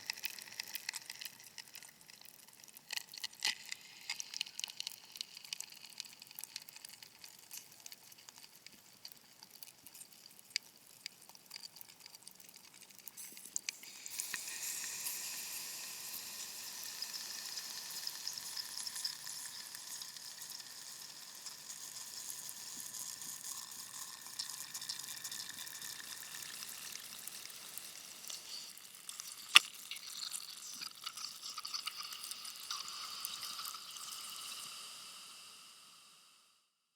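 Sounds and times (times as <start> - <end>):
light crackle: 0.0 - 36.2
white noise hiss: 32.3 - 36.6.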